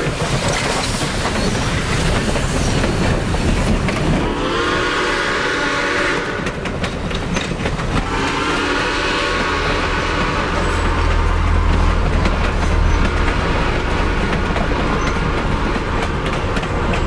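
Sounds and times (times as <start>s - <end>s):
train rumbling: 0.0s - 17.0s
steam whistle blast: 4.2s - 6.5s, 8.0s - 11.1s.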